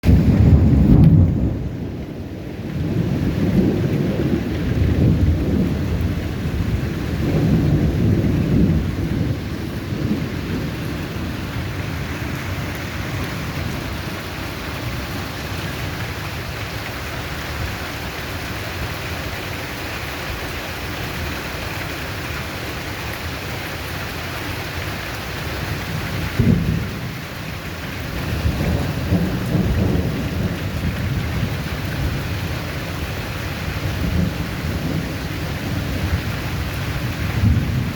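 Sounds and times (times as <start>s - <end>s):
thunder clap: 0.0s - 15.0s, 26.1s - 27.2s, 28.0s - 32.3s, 33.7s - 37.9s
thunder rumbling: 0.0s - 19.2s, 24.8s - 37.9s
heavy rain: 0.0s - 37.9s.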